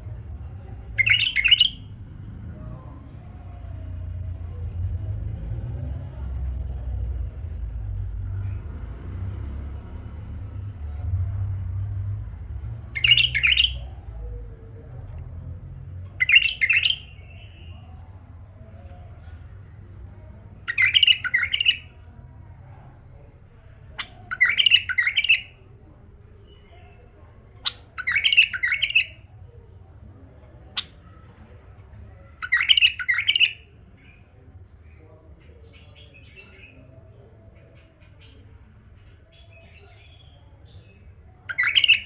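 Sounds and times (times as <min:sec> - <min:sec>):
bulbul singing: 0:00.9 - 0:01.9, 0:12.9 - 0:14.0, 0:16.1 - 0:18.1, 0:19.8 - 0:22.1, 0:23.7 - 0:29.6, 0:30.7 - 0:31.3, 0:32.1 - 0:35.0, 0:39.0 - 0:42.0.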